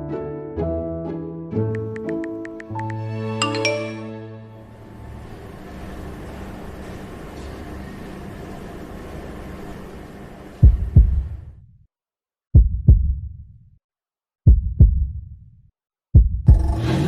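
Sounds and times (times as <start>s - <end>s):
heartbeat double thumps: 10.6s - 11.5s, 12.5s - 13.5s, 14.4s - 15.4s, 16.1s - 16.8s
low rumble: 10.6s - 11.7s.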